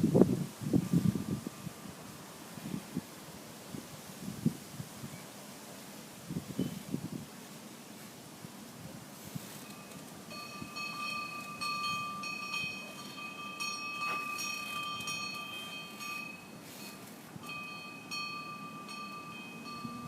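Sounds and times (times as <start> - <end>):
metal chimes ringing: 9.6 - 20.0.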